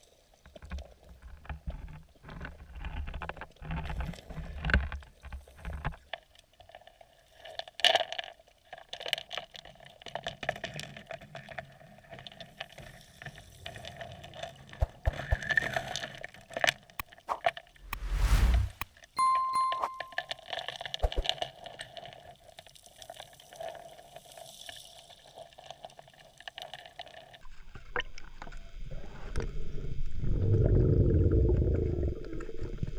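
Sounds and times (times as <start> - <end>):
underwater rumbling and bubbling: 30.0 - 32.9.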